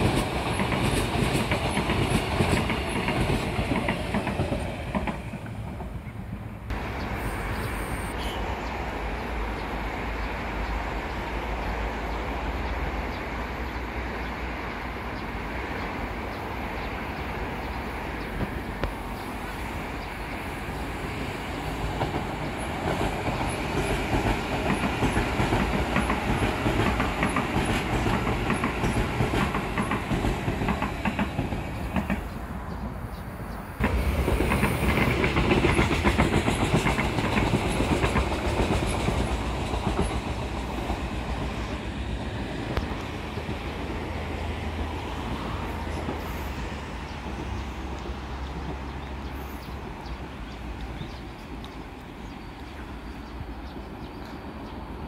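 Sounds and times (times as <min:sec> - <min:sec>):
train wheels clickety-clack: 0:00.0 - 0:06.8, 0:18.2 - 0:19.3, 0:20.7 - 0:33.0, 0:33.8 - 0:54.7.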